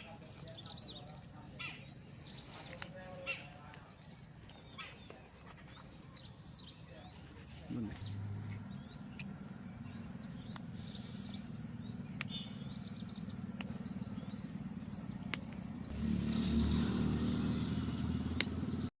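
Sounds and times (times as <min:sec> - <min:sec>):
high insect buzz: 0:00.0 - 0:18.9
small birds chirping: 0:00.0 - 0:18.9
engine running: 0:07.4 - 0:18.9
sharp clicks: 0:10.4 - 0:11.3, 0:12.1 - 0:12.4, 0:13.1 - 0:13.9, 0:15.1 - 0:15.6, 0:18.3 - 0:18.6.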